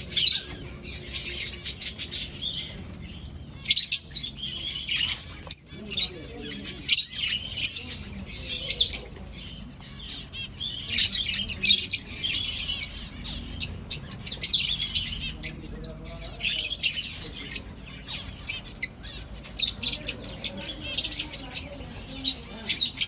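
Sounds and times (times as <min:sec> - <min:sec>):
finches chirping: 0:00.0 - 0:23.0.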